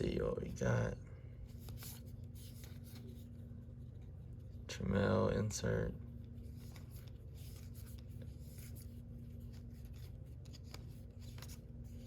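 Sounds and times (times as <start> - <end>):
steady low hum: 0.0 - 12.0
cards rubbing and flicking: 1.5 - 4.6, 6.3 - 12.0.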